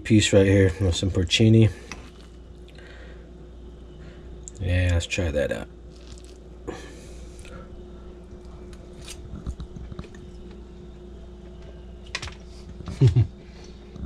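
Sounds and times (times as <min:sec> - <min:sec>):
faint hum: 0:00.0 - 0:14.0
person chewing: 0:05.9 - 0:06.4, 0:08.3 - 0:10.4.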